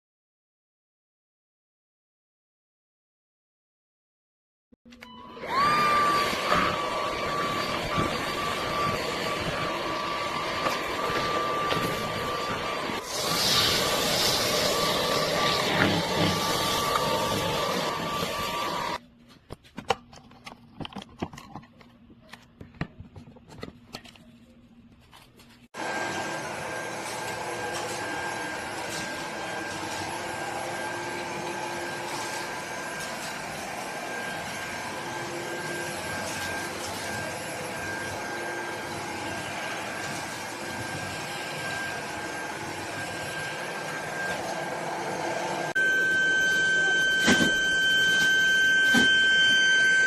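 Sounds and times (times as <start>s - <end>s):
vacuum motor high whine: 5.0s - 19.0s, 25.8s - 50.0s.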